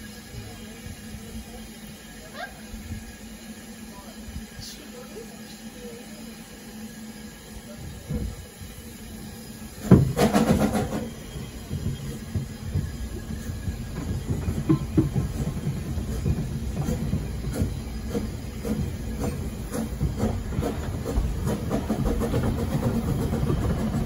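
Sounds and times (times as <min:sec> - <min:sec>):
loud train clatter: 0:00.0 - 0:24.0
train rumbling on rails: 0:00.0 - 0:24.0
rail clicks and knocks: 0:09.6 - 0:24.0.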